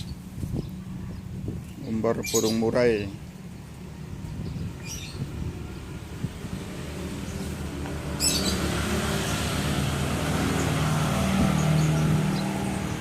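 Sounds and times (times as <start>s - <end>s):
vehicle engine running: 3.2s - 13.0s
high bird chirps: 8.1s - 8.7s.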